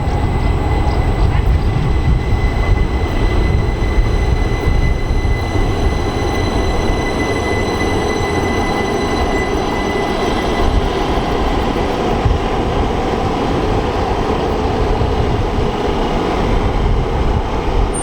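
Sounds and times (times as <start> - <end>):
high even whine: 0.0 - 13.9
train rumbling: 0.0 - 18.0.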